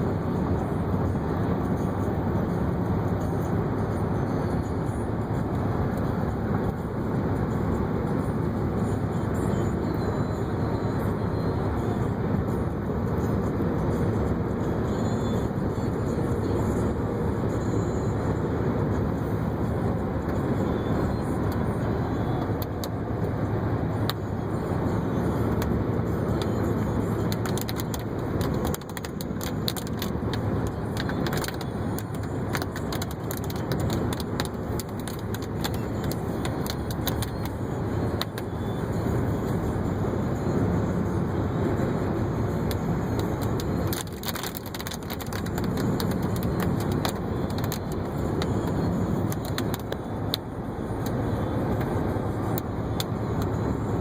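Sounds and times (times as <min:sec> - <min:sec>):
car cabin road rumble: 0:00.0 - 0:54.0
sharp ticks and clicks: 0:25.3 - 0:37.5, 0:42.4 - 0:53.6.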